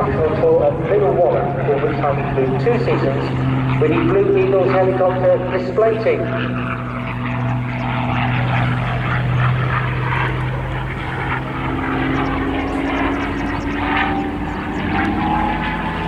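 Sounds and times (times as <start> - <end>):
propeller plane engine drone: 0.0 - 16.0
wind: 0.0 - 16.0.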